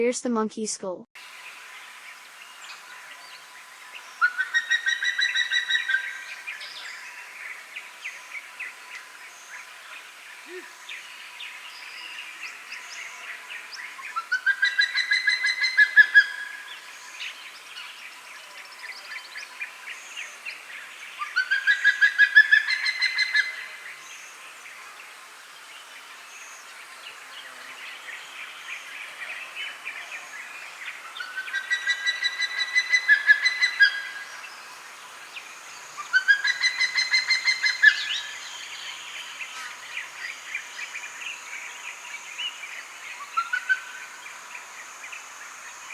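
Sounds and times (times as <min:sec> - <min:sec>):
natural ambience: 0:00.0 - 0:45.9.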